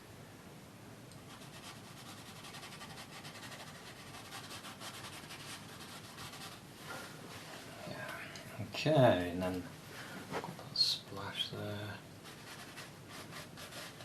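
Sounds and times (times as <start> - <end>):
brush scrubbing on canvas: 1.4 - 6.6, 12.2 - 14.0.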